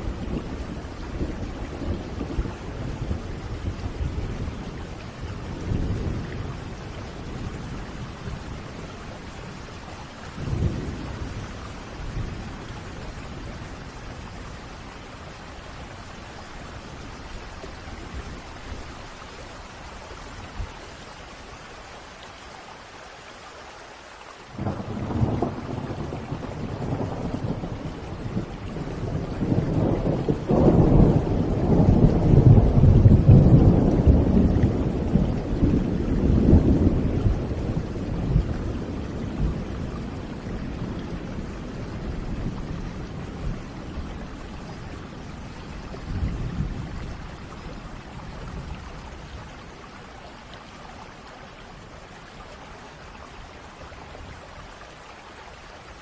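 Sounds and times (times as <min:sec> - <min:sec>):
thunder rumbling: 0:00.0 - 0:19.2, 0:24.6 - 0:49.9
steady rain: 0:00.0 - 0:56.0.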